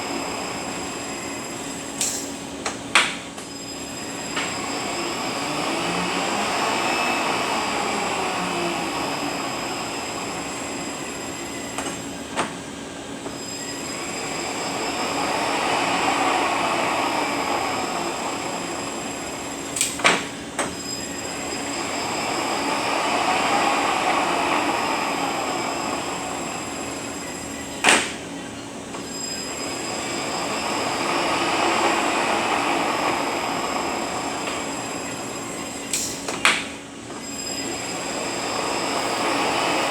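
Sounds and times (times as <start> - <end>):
truck transmission whine: 0.0 - 39.9.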